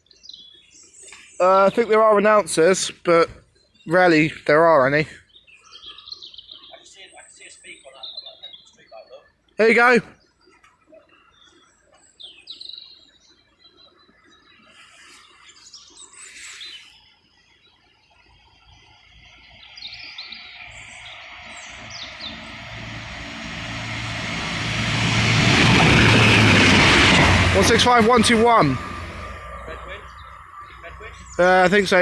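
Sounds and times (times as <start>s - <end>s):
small birds chirping: 0.0s - 23.7s, 29.3s - 32.0s
diesel train engine hum: 19.2s - 32.0s
train rail noise: 20.5s - 32.0s.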